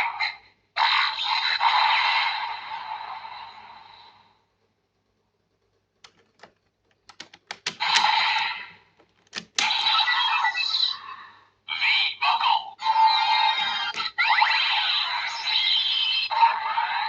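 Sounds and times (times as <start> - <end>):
plastic toy clicks: 6.0 - 10.0
toy electronic sound effects: 9.6 - 11.0, 11.7 - 17.0.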